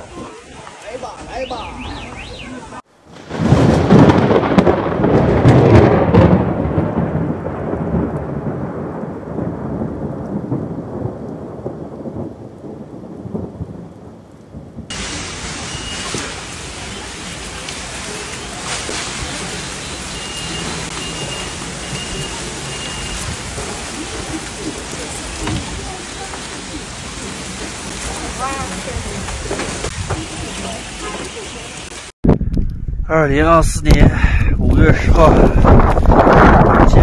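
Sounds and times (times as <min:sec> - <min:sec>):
rain: 0:00.0 - 0:32.2, 0:34.0 - 0:37.0
thunder rumbling: 0:00.0 - 0:37.0
wind: 0:00.0 - 0:37.0.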